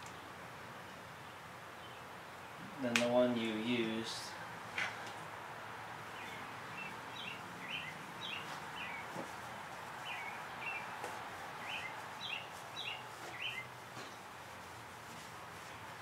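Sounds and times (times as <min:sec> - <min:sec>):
steady background hiss: 0:00.0 - 0:16.0
small bird chirping: 0:06.1 - 0:11.0, 0:11.6 - 0:13.8.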